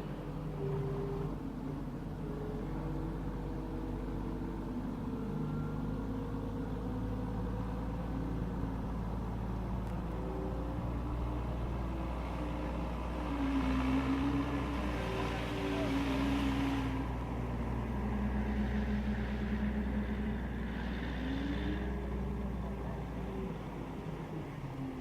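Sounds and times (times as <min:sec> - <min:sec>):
engine running with low hum: 0:00.0 - 0:25.0.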